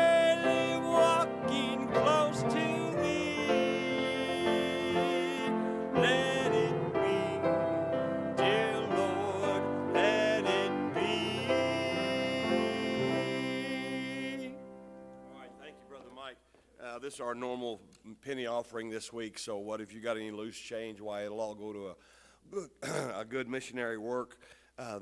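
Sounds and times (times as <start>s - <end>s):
sustained sliding sung notes: 0.0s - 15.7s
piano accompaniment: 0.0s - 16.0s.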